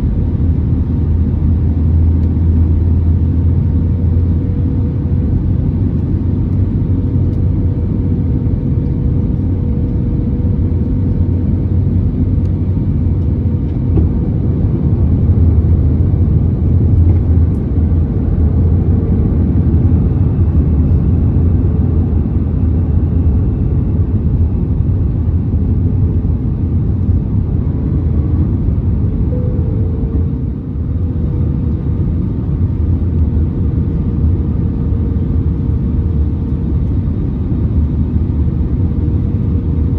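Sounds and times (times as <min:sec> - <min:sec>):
aircraft cabin engine rumble: 0:00.0 - 0:39.9
wavering engine tone: 0:27.0 - 0:36.5.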